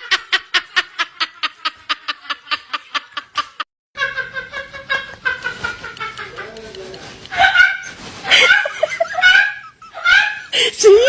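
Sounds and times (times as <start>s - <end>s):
rapid snickering laughter: 0.0s - 10.7s.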